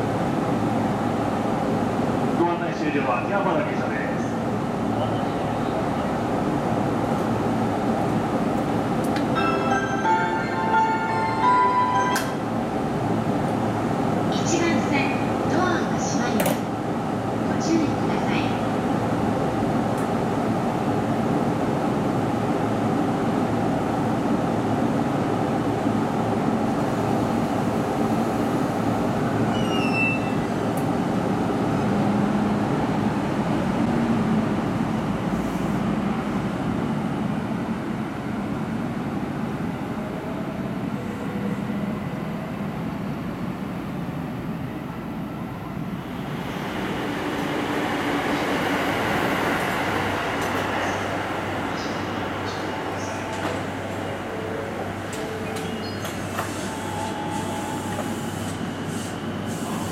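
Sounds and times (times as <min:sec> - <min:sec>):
approaching train rushing: 0:03.8 - 0:59.9
train running rumble: 0:11.9 - 0:59.9
high train squeal: 0:29.4 - 0:30.7, 0:50.4 - 0:59.9.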